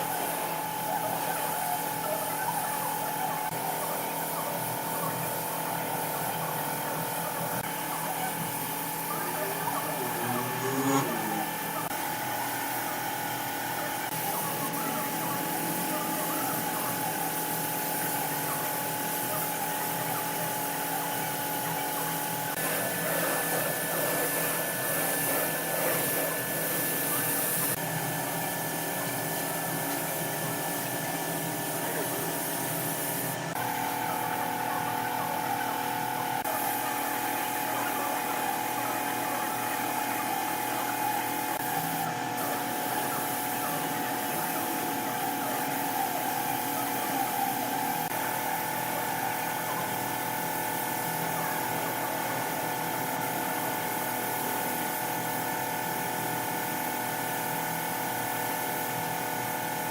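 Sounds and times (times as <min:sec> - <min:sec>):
power tool motor running: 0:09.4 - 0:11.9.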